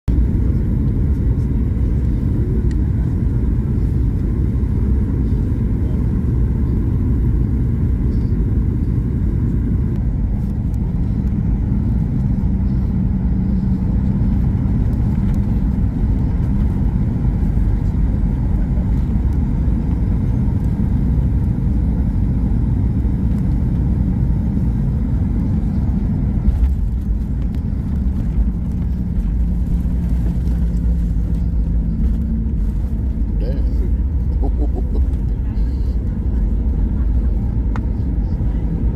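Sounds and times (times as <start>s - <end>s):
aircraft cabin engine rumble: 0.0s - 38.9s.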